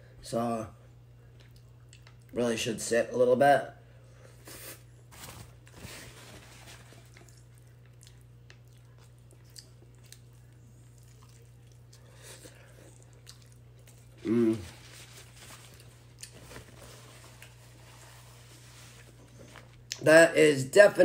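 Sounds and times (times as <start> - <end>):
crunchy food biting and chewing: 7.0 - 14.9.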